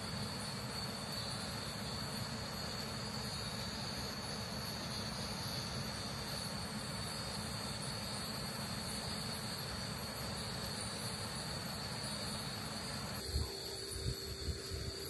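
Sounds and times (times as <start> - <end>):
steady ambient hiss: 0.0 - 15.0
thin high-pitched whine: 0.0 - 15.0.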